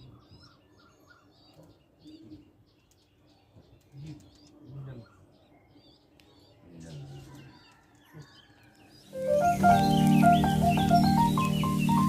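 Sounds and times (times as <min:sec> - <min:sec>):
small birds chirping: 0:00.0 - 0:12.0
pigeons cooing: 0:09.2 - 0:12.0.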